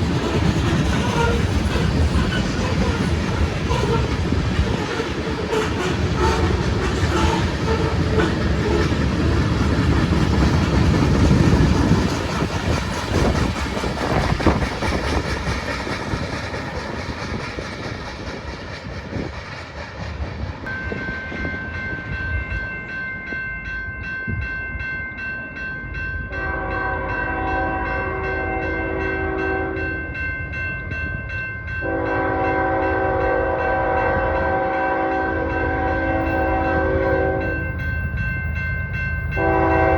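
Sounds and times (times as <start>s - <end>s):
freight train wheels clicking: 0.0s - 22.1s
locomotive air horn blasts: 4.7s - 9.0s, 26.4s - 29.8s, 31.8s - 37.6s, 39.4s - 39.9s.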